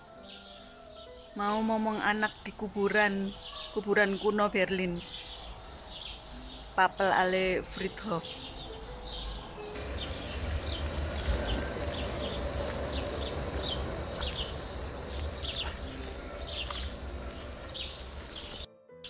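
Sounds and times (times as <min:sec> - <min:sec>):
small birds chirping: 0:00.0 - 0:18.7
steady low rumbling noise: 0:08.9 - 0:18.7.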